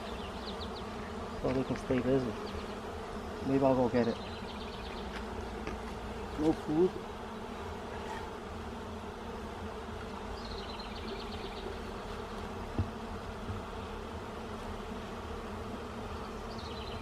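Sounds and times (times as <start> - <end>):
bees buzzing: 0.0 - 17.0
soft knock: 12.7 - 13.6.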